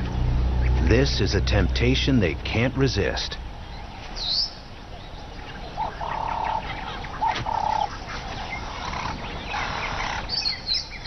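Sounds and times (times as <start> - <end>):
held bird calls: 2.3 - 11.0.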